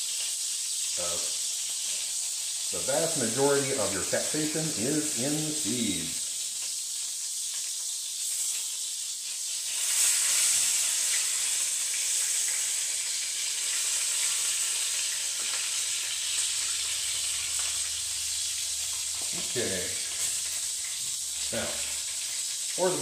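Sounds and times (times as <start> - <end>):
burger patties sizzling in grease: 0.0 - 23.0.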